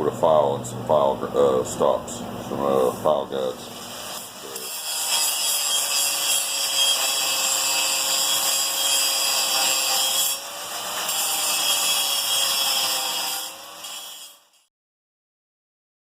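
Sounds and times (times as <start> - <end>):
angle grinder grinding steel: 2.7 - 14.7.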